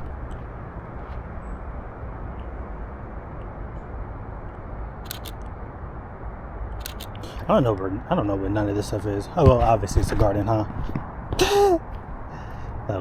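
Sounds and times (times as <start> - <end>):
low rumbling outdoor noise: 0.0 - 13.0
camera shutter double click: 5.1 - 5.4, 6.8 - 7.2.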